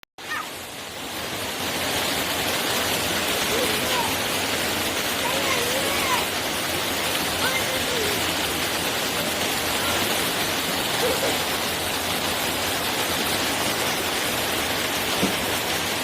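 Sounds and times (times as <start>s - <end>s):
stream water flowing: 0.2s - 16.0s.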